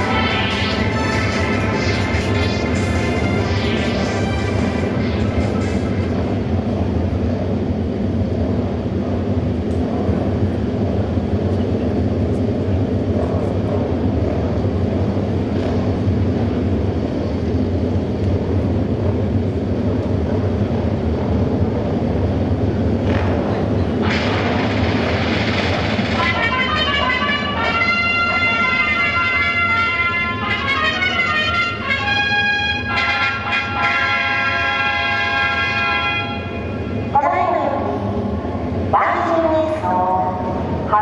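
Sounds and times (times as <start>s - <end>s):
racing motorcycle engines droning: 9.8s - 24.1s.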